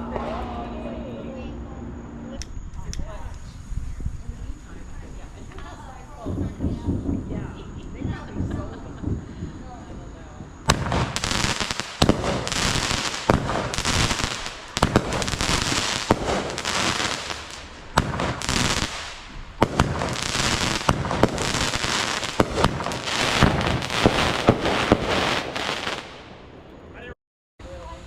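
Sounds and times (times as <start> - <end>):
fireworks crackling hiss: 2.5 - 28.0
fireworks cracks and bangs: 4.5 - 26.8.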